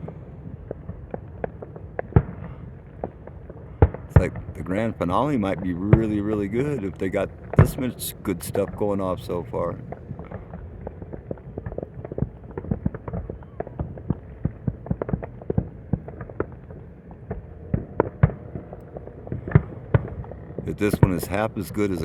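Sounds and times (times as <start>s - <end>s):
distant fireworks bangs and pops: 0.0s - 22.0s
steady low rumble: 0.0s - 22.0s.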